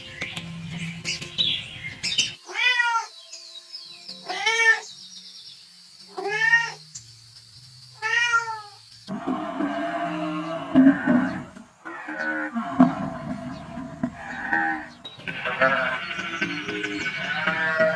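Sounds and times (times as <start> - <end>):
cat meowing: 2.5 - 3.1, 8.0 - 8.7
background music: 13.0 - 17.9.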